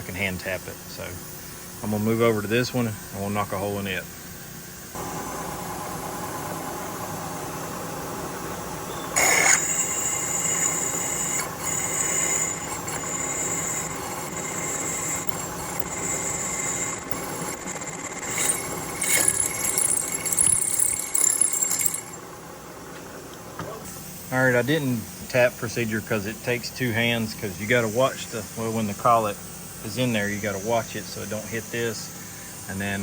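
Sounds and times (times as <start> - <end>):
milling machine spindle running: 5.0 - 23.6
drill bit cutting metal squealing: 9.2 - 22.2, 27.0 - 33.0.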